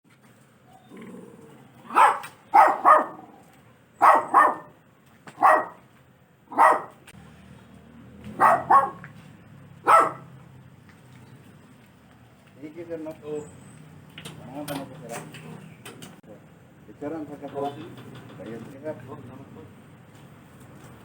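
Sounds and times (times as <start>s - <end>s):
dog barking: 1.8s - 3.4s, 4.0s - 5.8s, 6.5s - 7.0s, 8.3s - 9.1s, 9.8s - 10.4s.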